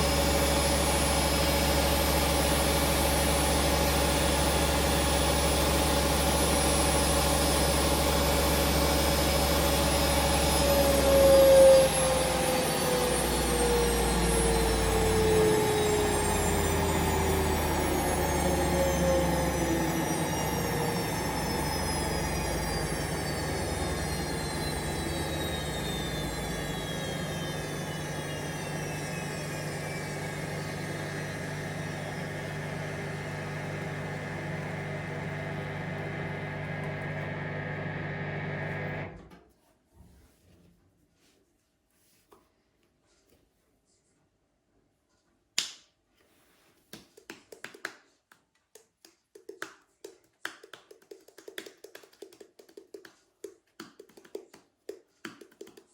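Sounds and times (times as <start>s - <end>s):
washing machine motor whine: 0.0s - 39.4s.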